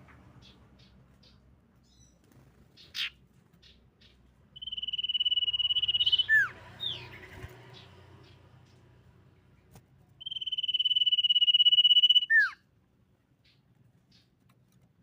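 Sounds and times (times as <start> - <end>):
bird chirps: 0.0 - 8.8, 10.2 - 12.7, 13.4 - 14.4
trilled bird whistle: 4.6 - 7.0, 10.2 - 12.6.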